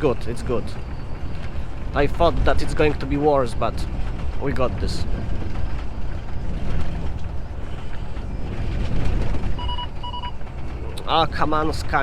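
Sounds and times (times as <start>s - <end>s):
truck engine and road rumble: 0.0s - 12.0s
short warning beeps: 9.6s - 10.4s.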